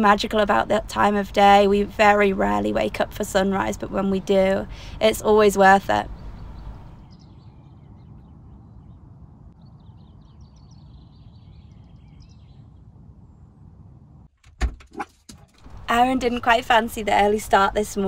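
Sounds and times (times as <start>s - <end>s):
birds chirping faintly: 0.0s - 13.7s
low outdoor background noise: 0.0s - 14.3s, 15.6s - 18.0s.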